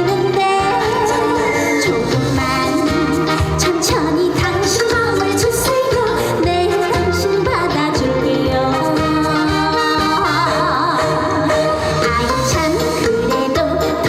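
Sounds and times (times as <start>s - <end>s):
band backing track: 0.0s - 14.0s
woman singing with vibrato: 0.0s - 14.0s.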